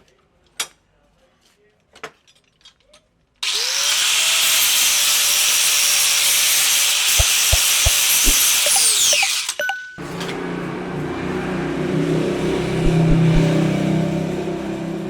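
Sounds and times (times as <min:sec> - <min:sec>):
power tool grinding: 0:03.4 - 0:09.6.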